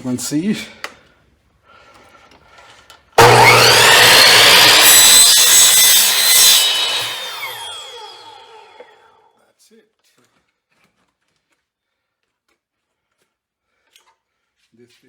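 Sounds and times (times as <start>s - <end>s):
power saw cutting block: 3.2s - 9.1s.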